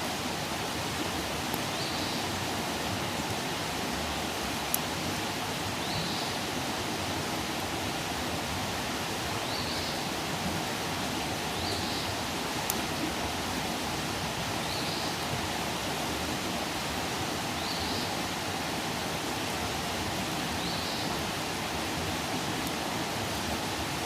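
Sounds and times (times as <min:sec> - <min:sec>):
campfire hissing: 0:00.0 - 0:24.0.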